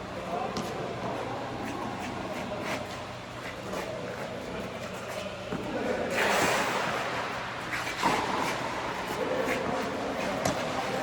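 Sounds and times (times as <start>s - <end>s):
tennis ball hit by rackets: 9.3s - 10.8s.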